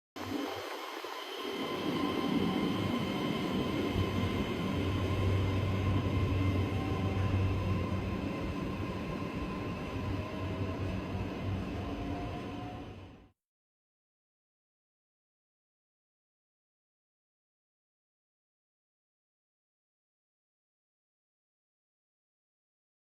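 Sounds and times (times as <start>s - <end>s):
train running: 0.2s - 13.3s.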